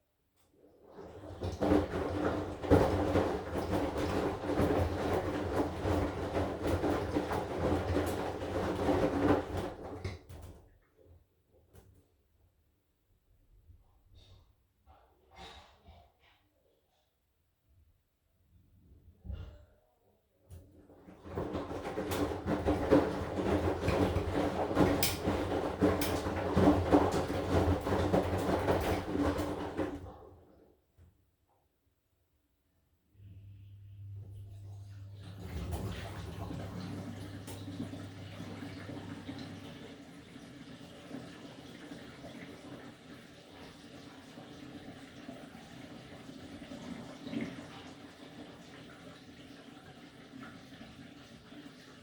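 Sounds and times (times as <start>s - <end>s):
washing machine drum churning: 0.8s - 10.7s, 20.6s - 30.7s, 34.2s - 52.0s.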